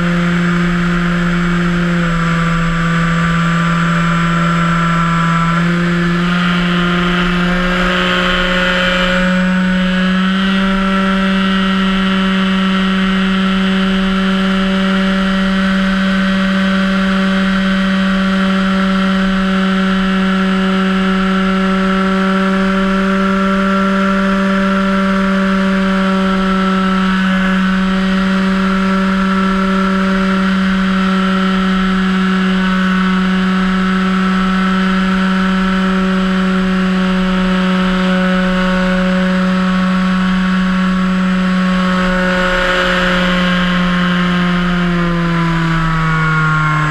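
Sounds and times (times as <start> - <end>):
model plane motor whining: 40.9 - 46.9.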